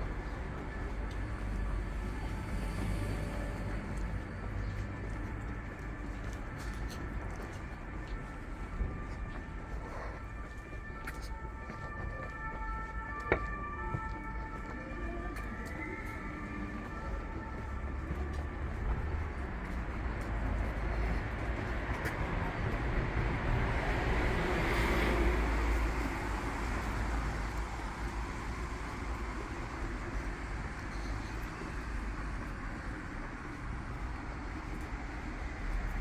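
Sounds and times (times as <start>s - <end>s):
street traffic noise: 0.0s - 36.0s.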